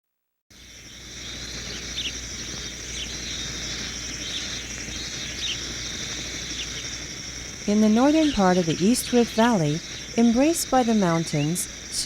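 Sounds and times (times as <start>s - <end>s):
high-pitched insect trill: 0.5s - 12.0s.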